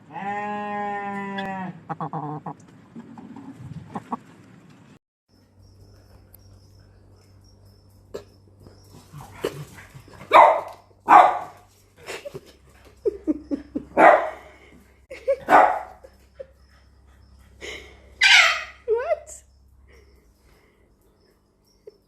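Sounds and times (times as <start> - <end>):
dog yipping: 10.3 - 11.5, 18.2 - 18.9
dog barking: 10.3 - 11.6, 14.0 - 14.5, 15.4 - 16.1, 18.2 - 18.8.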